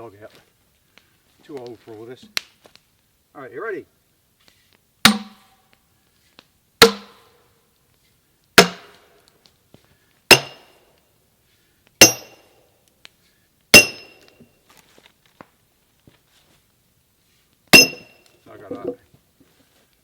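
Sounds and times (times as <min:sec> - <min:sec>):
sledgehammer striking steel wedge: 0:05.0 - 0:05.6, 0:06.8 - 0:07.3, 0:08.6 - 0:09.2, 0:10.3 - 0:10.8, 0:12.0 - 0:12.6, 0:13.7 - 0:14.3, 0:17.7 - 0:18.2.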